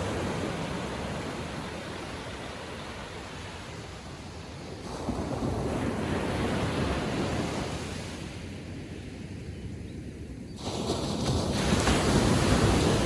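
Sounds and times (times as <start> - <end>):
ocean wave breaking on beach: 10.6 - 13.0.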